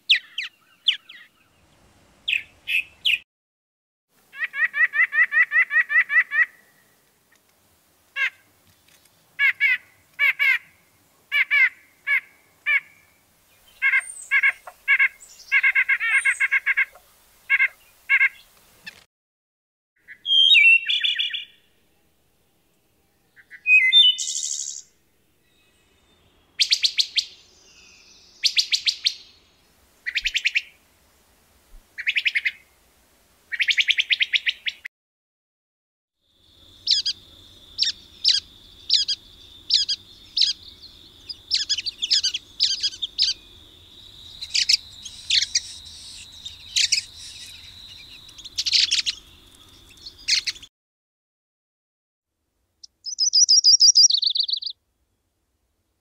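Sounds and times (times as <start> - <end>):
background hiss: 0.0 - 3.2, 4.2 - 19.1, 20.8 - 34.8, 36.3 - 50.7
bird chirps and buzzy notes: 36.4 - 50.7, 52.8 - 54.7
quick sharp bird notes: 53.1 - 54.7.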